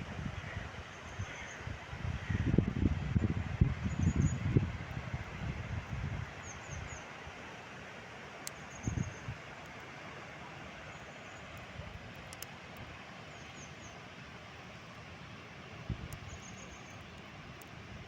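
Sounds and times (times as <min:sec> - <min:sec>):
wind rumble on microphone: 0:00.0 - 0:06.9, 0:08.8 - 0:09.4, 0:15.8 - 0:16.3.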